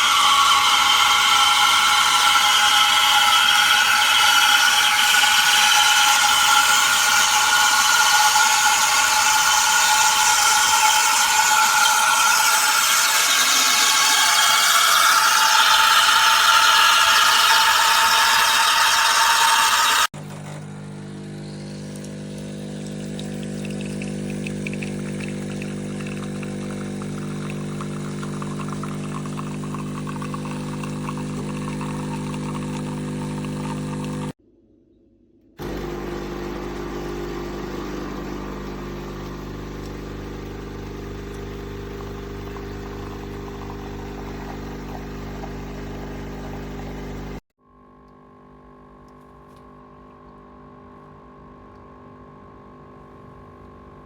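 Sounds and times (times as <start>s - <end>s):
high-pitched whistling tones: 0.0s - 7.8s
espresso machine hissing: 0.0s - 34.4s, 35.6s - 47.4s
espresso machine mechanical hum: 3.9s - 14.6s, 15.2s - 34.4s, 35.6s - 54.0s.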